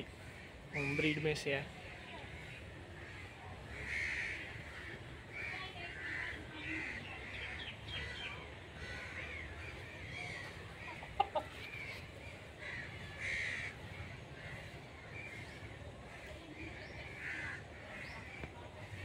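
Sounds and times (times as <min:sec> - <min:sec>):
birds calling harshly: 0:00.0 - 0:19.0.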